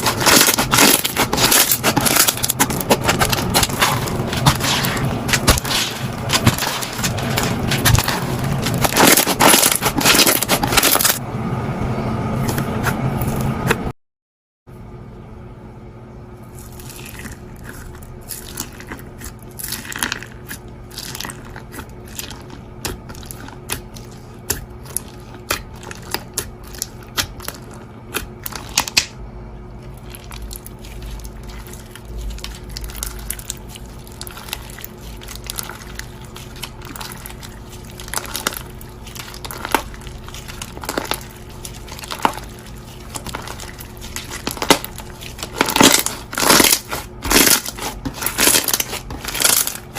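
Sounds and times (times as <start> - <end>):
low hum: 0.0 - 14.0, 14.7 - 49.9
bead slime crunching and popping: 30.0 - 49.9.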